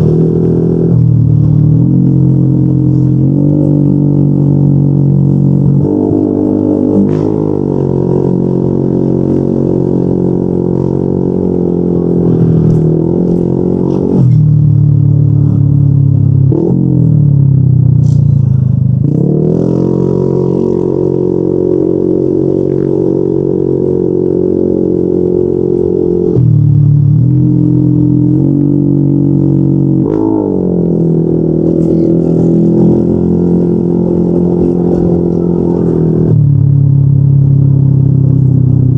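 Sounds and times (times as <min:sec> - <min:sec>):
scooter engine droning: 0:00.0 - 0:38.9.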